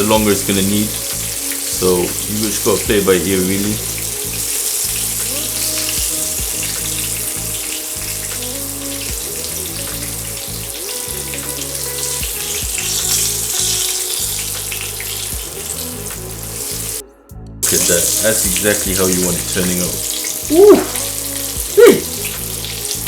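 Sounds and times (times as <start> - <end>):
food sizzling in hot oil: 0.0 - 17.0, 17.6 - 23.0.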